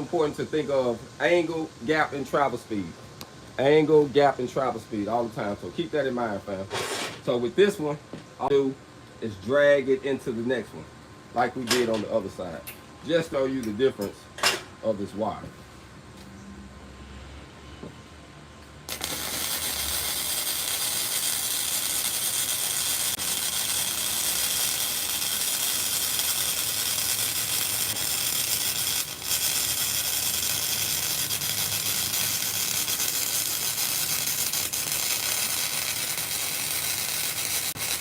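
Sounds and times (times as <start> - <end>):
welding arc crackling: 18.9 - 38.0.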